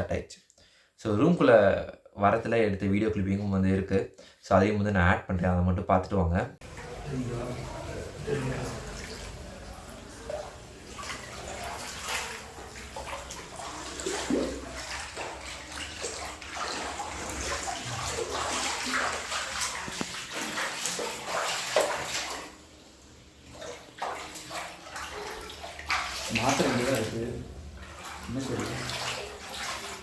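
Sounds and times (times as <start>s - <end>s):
floodwater rushing and splashing: 6.6s - 22.8s, 23.4s - 30.0s.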